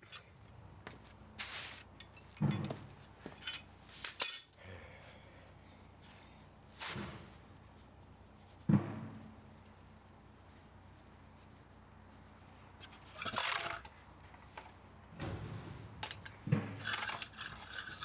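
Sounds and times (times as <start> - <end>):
metal tools clinking and clanking: 0.0 - 0.3, 1.4 - 4.6, 12.8 - 14.6.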